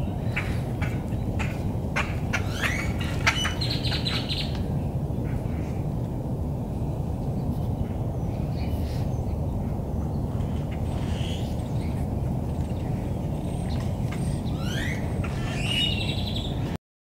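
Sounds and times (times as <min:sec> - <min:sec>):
birds squawking: 0:00.3 - 0:04.5, 0:14.2 - 0:16.5.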